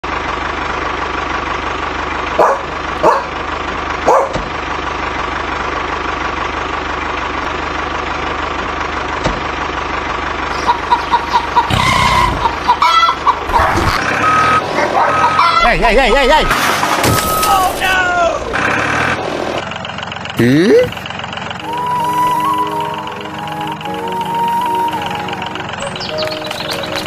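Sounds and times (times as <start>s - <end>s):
engine drone: 0.0s - 27.0s
short beeps: 16.4s - 17.7s.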